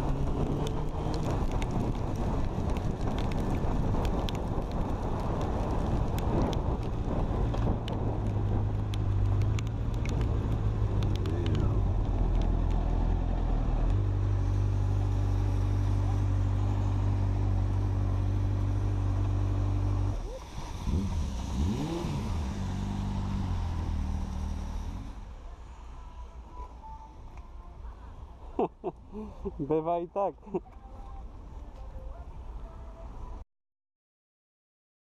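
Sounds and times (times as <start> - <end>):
motorcycle engine idling and revving: 0.0 - 26.0.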